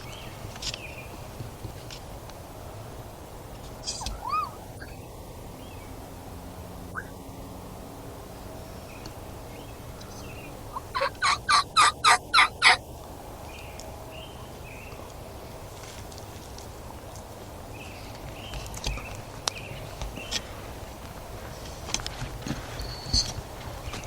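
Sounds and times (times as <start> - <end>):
turkey yelps: 3.8 - 5.0, 7.0 - 7.2, 10.7 - 12.8
chirping bird call: 3.8 - 5.1, 6.9 - 7.2.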